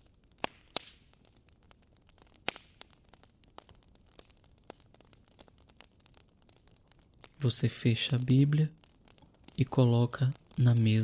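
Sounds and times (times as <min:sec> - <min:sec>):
faint fire hiss: 0:00.0 - 0:11.0
fireplace wood popping and snapping: 0:00.4 - 0:01.4, 0:02.1 - 0:06.6.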